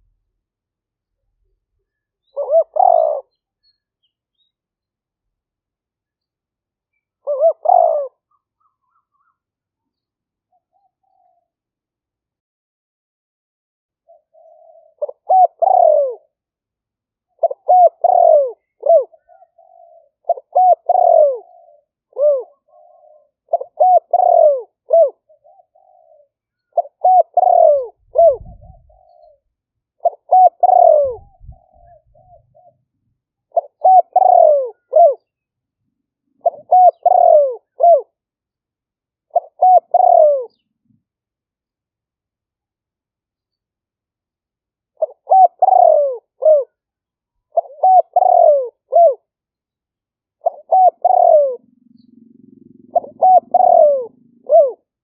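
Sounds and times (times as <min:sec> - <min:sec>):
dove cooing: 0:01.9 - 0:03.4, 0:07.2 - 0:09.3, 0:10.5 - 0:11.6, 0:14.1 - 0:16.4, 0:17.3 - 0:29.4, 0:30.0 - 0:35.3, 0:36.3 - 0:38.2, 0:39.3 - 0:40.7, 0:45.0 - 0:46.8, 0:47.5 - 0:49.3, 0:50.4 - 0:55.0.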